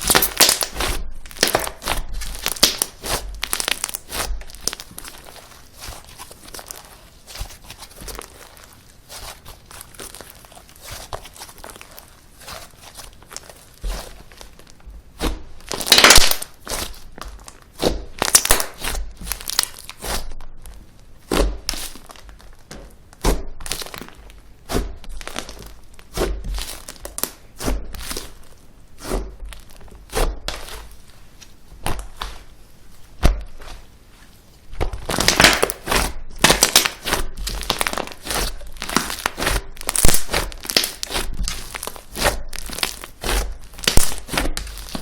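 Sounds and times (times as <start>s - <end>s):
slime squeezed by hand: 21.3s - 22.4s, 35.0s - 45.0s.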